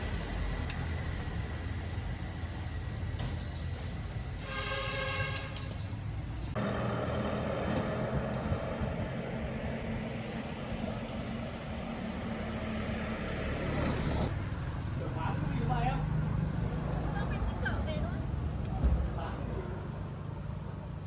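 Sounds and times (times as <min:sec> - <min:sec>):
vehicle engine running: 0:06.5 - 0:18.5.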